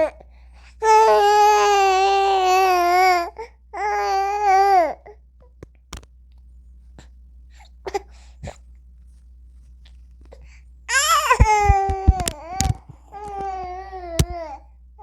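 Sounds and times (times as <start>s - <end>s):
faint clicks: 11.3s - 13.5s.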